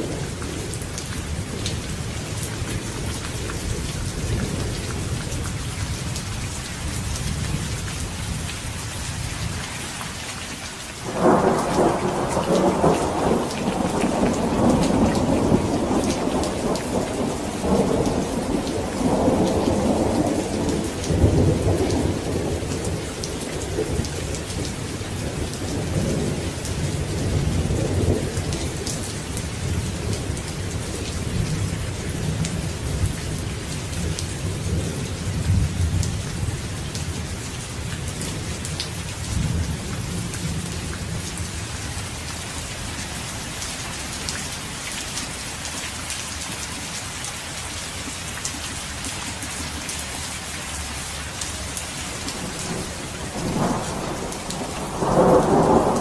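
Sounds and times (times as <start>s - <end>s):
heavy rain: 0.0s - 56.0s
rolling thunder rumble: 11.0s - 36.6s, 52.3s - 56.0s.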